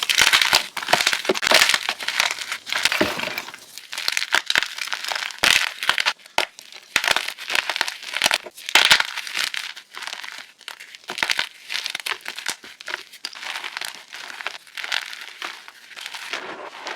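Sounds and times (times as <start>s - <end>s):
chalk crunching: 0.1s - 3.7s.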